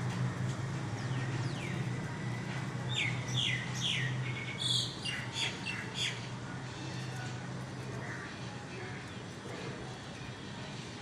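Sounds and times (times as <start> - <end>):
steady low hum: 0.0 - 5.6.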